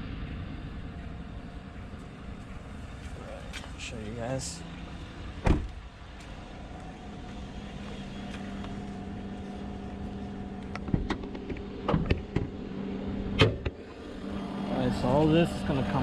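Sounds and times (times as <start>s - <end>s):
truck engine idling: 0.0s - 16.0s
sharp thump: 5.4s - 5.8s.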